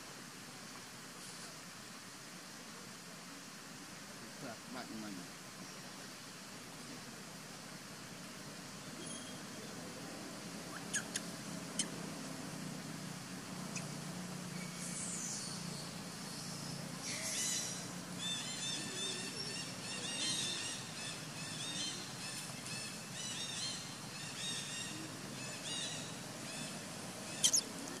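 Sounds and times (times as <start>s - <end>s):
faint low hum: 0.0s - 28.0s
birds chirping: 8.8s - 9.7s, 10.7s - 28.0s.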